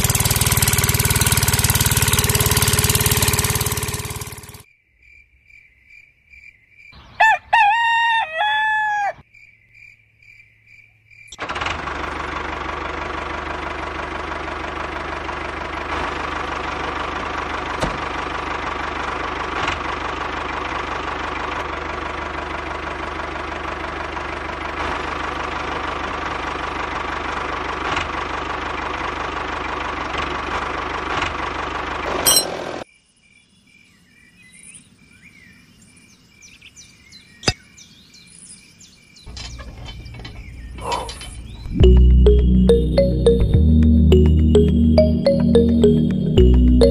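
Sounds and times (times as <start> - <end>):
small motor running: 0.0 - 4.6
rooster crowing: 7.1 - 9.2.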